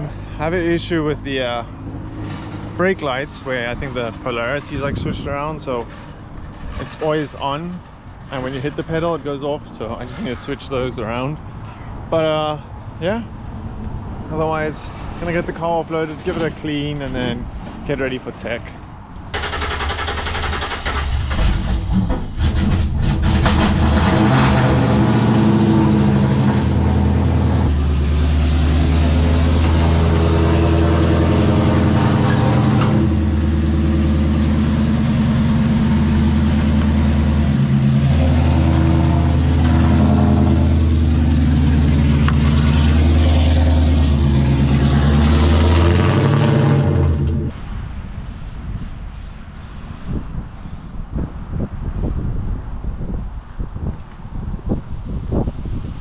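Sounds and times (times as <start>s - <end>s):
car engine idling: 19.1s - 21.6s.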